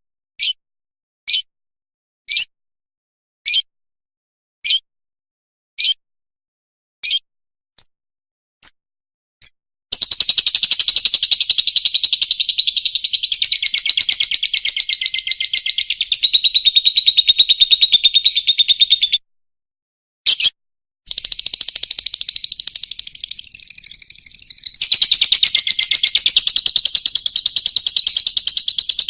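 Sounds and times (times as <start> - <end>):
lovebird chirping and chattering: 1.3 - 1.5, 3.5 - 3.7, 7.0 - 7.2, 9.9 - 19.2, 20.3 - 29.0.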